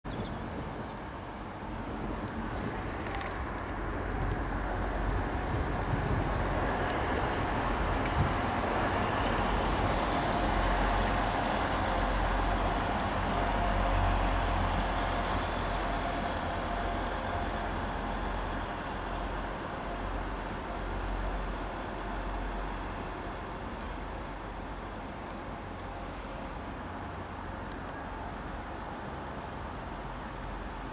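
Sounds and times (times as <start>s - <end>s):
passenger train rumbling past: 0.2s - 30.9s.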